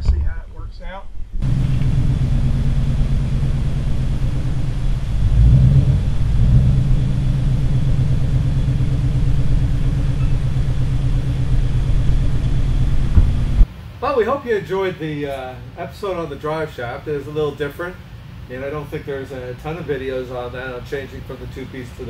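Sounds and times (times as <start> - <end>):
car exhaust rumble: 0.0 - 13.7.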